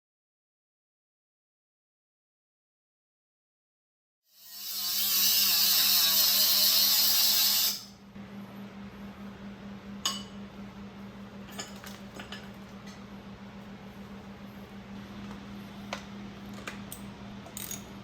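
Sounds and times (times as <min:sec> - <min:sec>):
workshop tool whirring: 0:04.3 - 0:08.0
steady low hum: 0:07.6 - 0:18.0.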